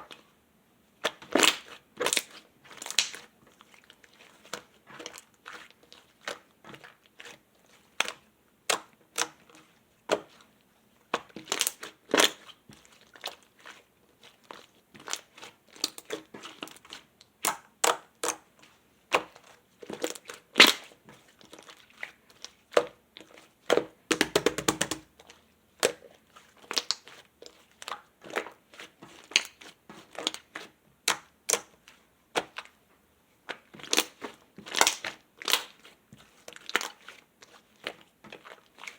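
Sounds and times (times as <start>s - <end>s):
slime crackling and popping: 1.4s - 3.2s, 33.8s - 35.8s.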